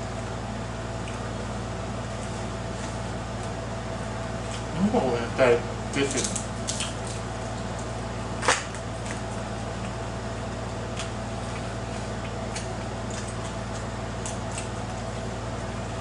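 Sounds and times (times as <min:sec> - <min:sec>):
background hum: 0:00.0 - 0:16.0
utensil clicks and squishes: 0:05.9 - 0:10.0, 0:10.9 - 0:15.1
chewing: 0:10.9 - 0:15.1.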